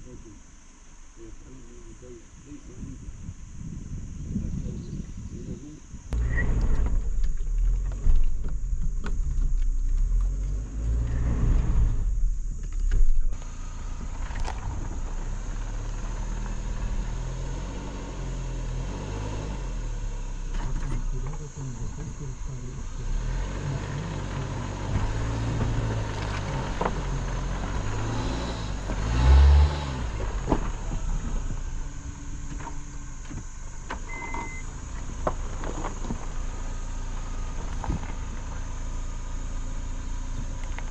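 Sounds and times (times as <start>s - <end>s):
motor vehicle rumbling: 0.0s - 40.9s
gusty noise: 2.4s - 7.2s.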